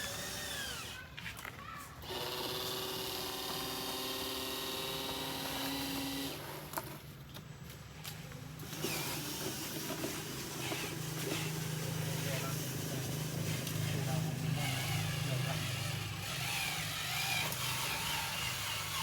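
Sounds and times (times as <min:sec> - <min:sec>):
small electric motor whining: 0:00.0 - 0:01.1, 0:08.7 - 0:19.0
rough motor sound: 0:00.0 - 0:07.0, 0:08.6 - 0:19.0.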